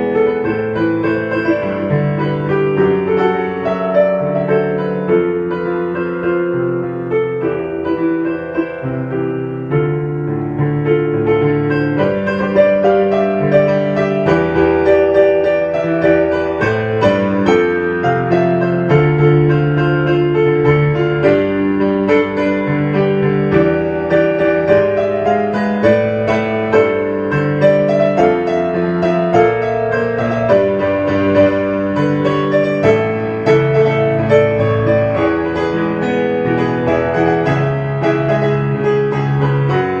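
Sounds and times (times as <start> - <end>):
background piano music: 0.0 - 40.0.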